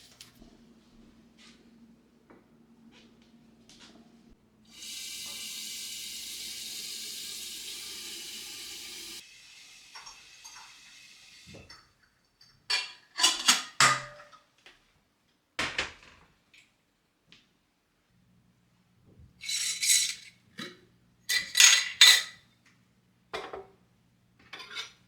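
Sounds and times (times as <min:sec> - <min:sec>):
kitchen tap running: 0:04.6 - 0:12.6
kitchenware clattering: 0:11.5 - 0:14.5, 0:19.4 - 0:22.4, 0:24.4 - 0:25.0.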